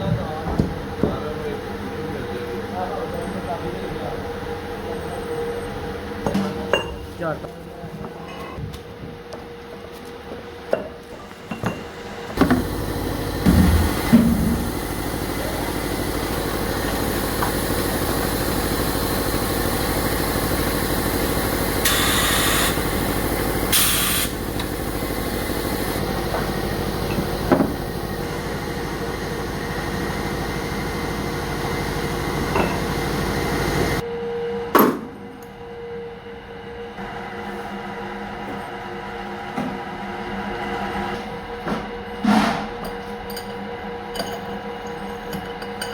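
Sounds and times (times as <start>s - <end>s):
workshop machine drone: 0.0s - 45.9s
short hissing bursts: 23.7s - 24.4s.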